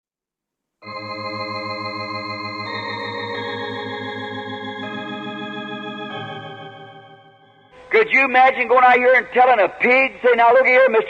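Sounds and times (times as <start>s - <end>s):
organ chords: 0.8s - 9.4s.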